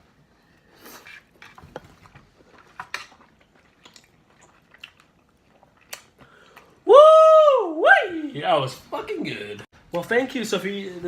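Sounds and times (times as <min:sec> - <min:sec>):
people chewing: 0:00.4 - 0:06.8.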